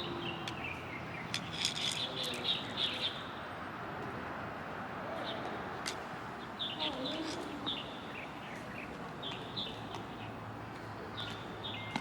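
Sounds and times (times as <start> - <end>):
birds chirping: 0.0 - 3.4, 6.2 - 12.0
outdoor background hiss: 0.0 - 12.0.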